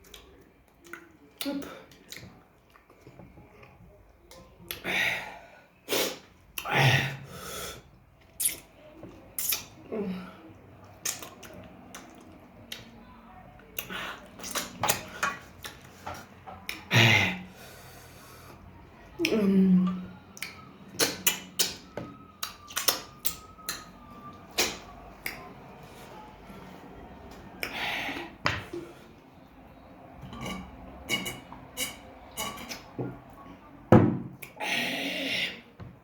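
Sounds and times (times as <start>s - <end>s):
chewing smacks and clicks: 0.0s - 4.8s, 10.8s - 13.0s, 13.6s - 15.9s, 20.3s - 25.5s.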